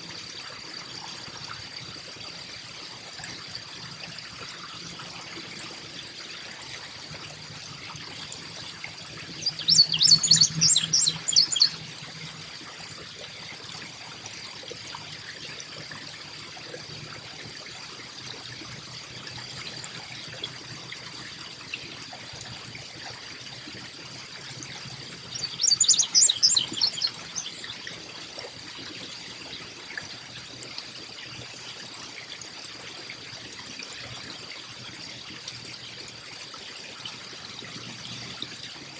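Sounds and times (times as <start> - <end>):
trickling water: 0.0 - 38.9
songbird chattering: 9.4 - 11.8, 25.4 - 27.6.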